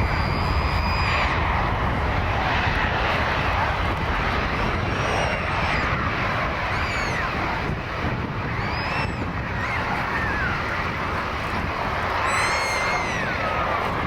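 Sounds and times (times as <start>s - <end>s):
jet airliner engines rumbling: 0.0s - 14.0s.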